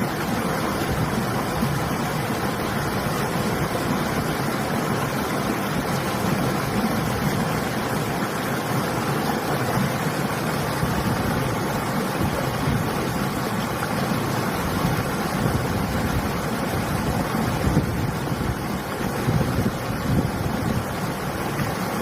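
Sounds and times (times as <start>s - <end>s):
river water rushing: 0.0s - 22.0s
wind: 0.0s - 22.0s.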